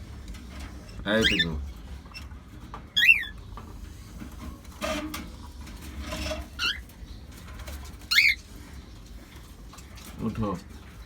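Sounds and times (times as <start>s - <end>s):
cockatiel calling: 1.2s - 1.5s, 3.0s - 3.4s, 8.1s - 8.4s.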